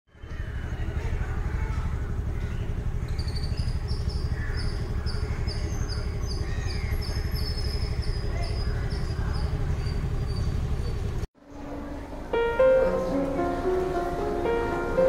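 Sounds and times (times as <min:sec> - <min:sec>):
low outdoor rumble: 0:00.2 - 0:15.0
bird chirping: 0:02.3 - 0:11.7.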